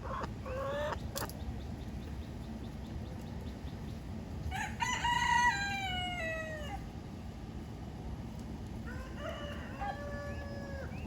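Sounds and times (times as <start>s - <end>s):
rooster crowing: 4.5s - 6.9s, 8.8s - 11.0s.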